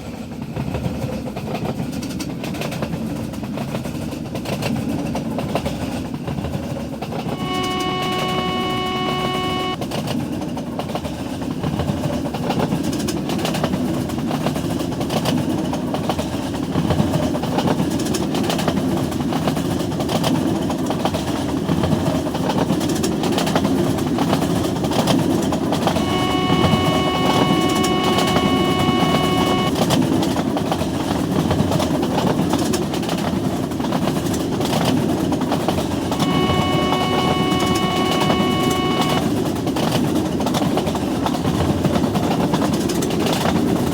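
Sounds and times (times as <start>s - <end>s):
train horn blasts: 7.3s - 9.8s, 25.9s - 29.7s, 36.1s - 39.3s.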